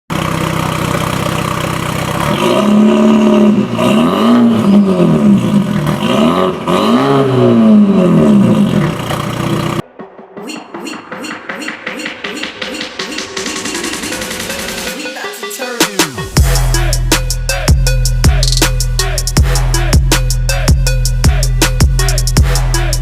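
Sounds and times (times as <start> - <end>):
car engine idling and revving: 0.1 - 9.9
music: 9.8 - 23.0.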